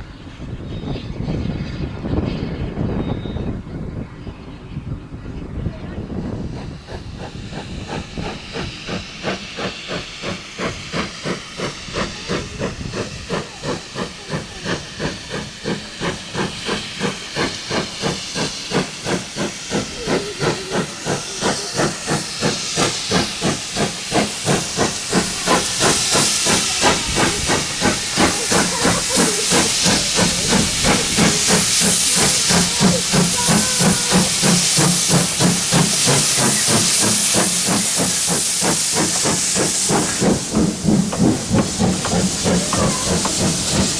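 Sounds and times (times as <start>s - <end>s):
steam locomotive exhaust beats: 0.0s - 43.9s
steam hissing: 5.5s - 43.9s.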